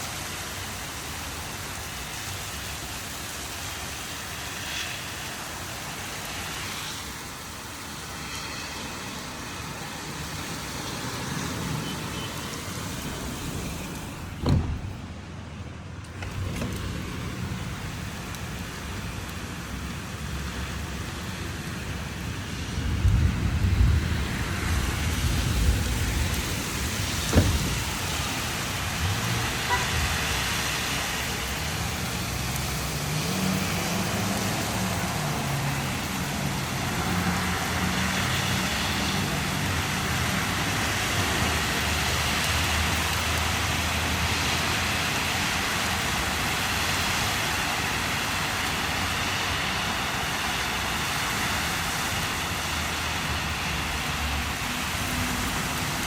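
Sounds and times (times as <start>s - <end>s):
heavy rain: 0.0s - 56.0s
tyres hissing on wet road: 0.0s - 56.0s
vehicle engine hum: 11.1s - 21.2s, 22.0s - 41.1s.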